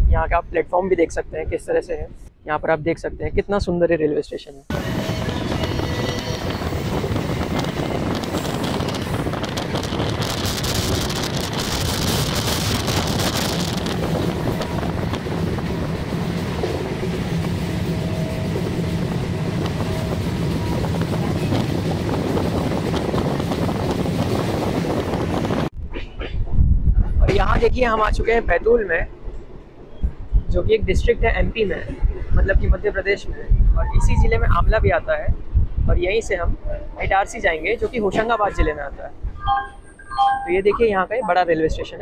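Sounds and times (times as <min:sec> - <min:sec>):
wind on microphone: 0:04.7 - 0:28.4, 0:29.0 - 0:40.7
train running noise: 0:04.7 - 0:30.5.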